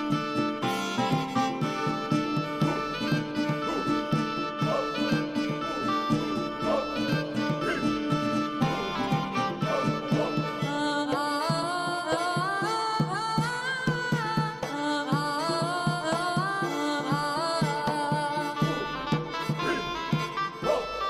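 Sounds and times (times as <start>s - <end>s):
steady drum beat: 0.0s - 10.8s, 18.0s - 21.0s
sliding melody: 0.0s - 13.8s.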